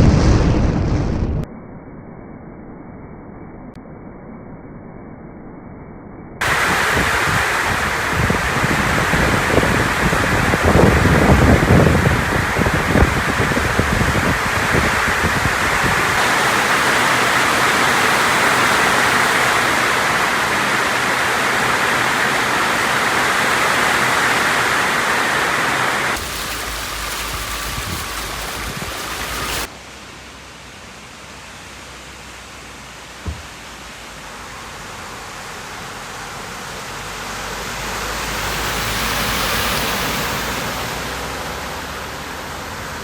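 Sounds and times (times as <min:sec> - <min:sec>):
heavy rain hissing: 0:06.4 - 0:43.0
short knock: 0:33.2 - 0:33.5.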